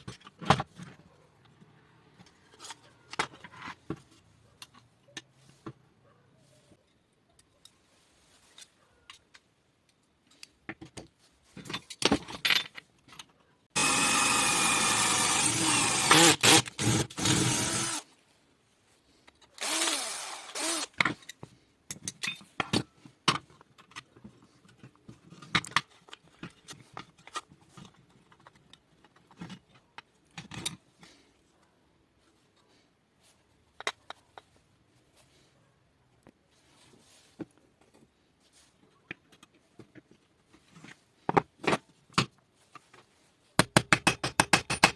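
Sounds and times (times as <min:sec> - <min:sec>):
power tool running: 0:13.8 - 0:18.0, 0:19.6 - 0:20.9.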